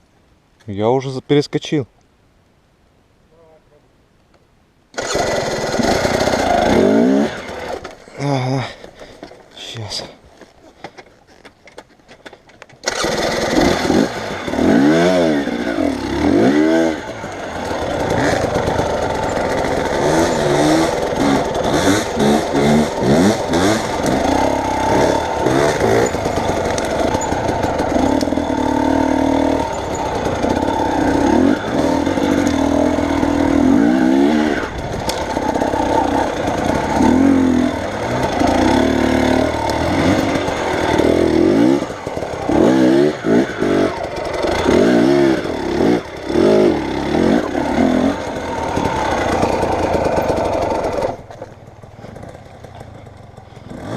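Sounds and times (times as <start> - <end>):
vehicle engine revving: 5.0 - 7.9, 12.8 - 51.2.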